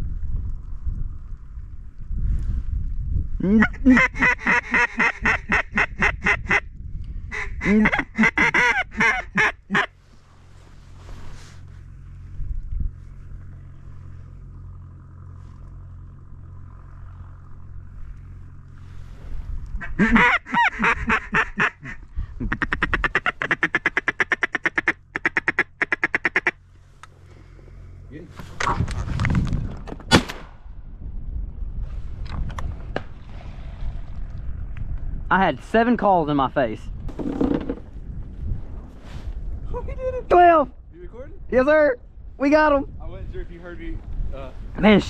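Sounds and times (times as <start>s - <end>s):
duck call quacking: 3.6s - 6.6s, 7.3s - 9.9s, 19.8s - 26.6s.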